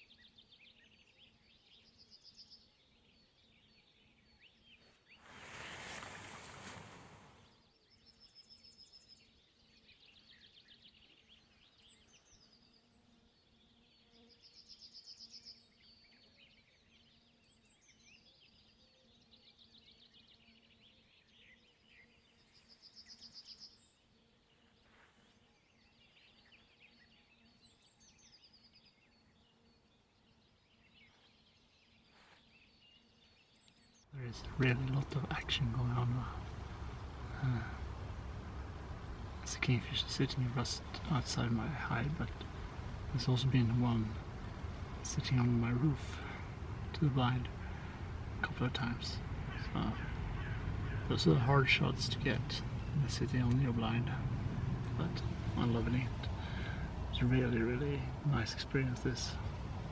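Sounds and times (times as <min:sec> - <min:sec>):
rush of noise: 0:05.2 - 0:07.4, 0:34.3 - 0:59.9
high-pitched bird calls: 0:34.4 - 0:59.5.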